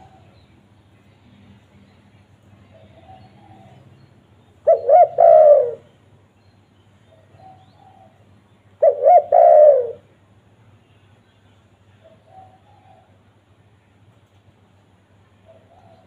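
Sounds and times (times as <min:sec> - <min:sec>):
dove cooing: 0:00.0 - 0:00.4, 0:02.7 - 0:03.9, 0:04.6 - 0:05.9, 0:08.8 - 0:10.1, 0:15.4 - 0:16.0.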